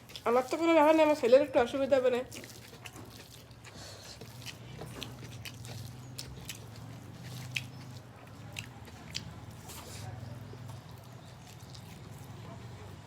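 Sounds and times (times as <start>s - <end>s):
person chewing food: 0.0s - 1.0s, 2.2s - 12.7s
wet mouth clicks: 2.4s - 9.6s.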